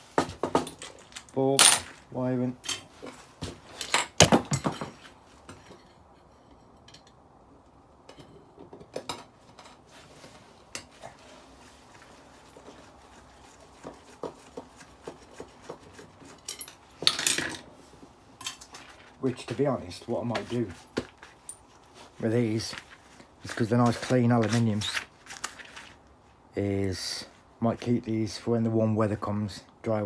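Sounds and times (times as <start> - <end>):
small metal parts clinking: 16.4 - 17.7.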